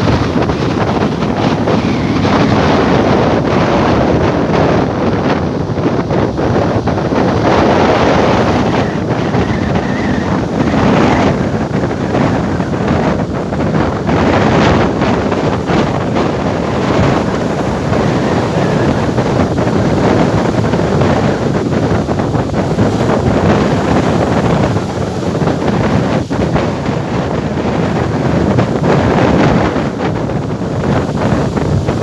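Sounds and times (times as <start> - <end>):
sea waves breaking on shore: 0.0 - 32.0
wind buffeting the microphone: 0.0 - 32.0.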